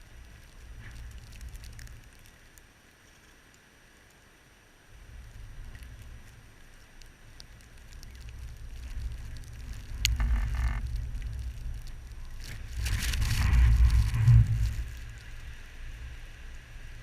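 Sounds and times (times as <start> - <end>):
blizzard wind buffeting microphone: 4.9 - 17.0.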